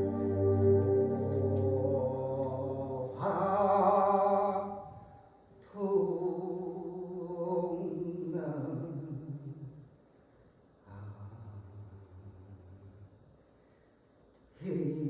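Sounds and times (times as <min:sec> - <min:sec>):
person singing long held notes: 0:00.0 - 0:04.5.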